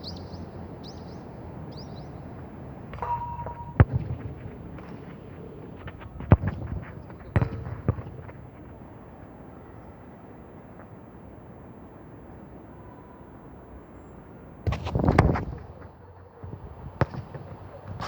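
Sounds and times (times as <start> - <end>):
football kick thuds: 1.7 - 9.3, 14.7 - 15.8, 16.4 - 18.0
wind noise: 14.6 - 18.0.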